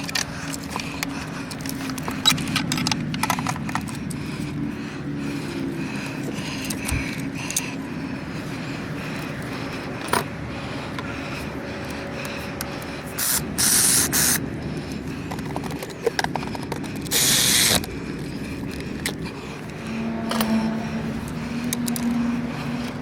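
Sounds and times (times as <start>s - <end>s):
low engine hum: 0.0s - 23.0s
hissing spray bursts: 13.2s - 14.4s, 17.1s - 17.8s.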